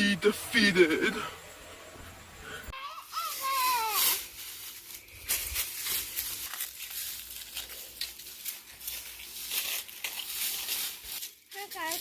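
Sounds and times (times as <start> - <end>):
rustling and crinkling handling noise: 3.0 - 12.0.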